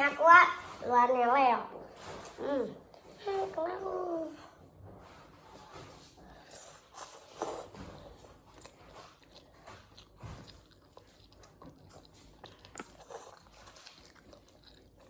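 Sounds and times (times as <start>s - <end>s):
chewing and mouth noises: 6.4s - 15.0s.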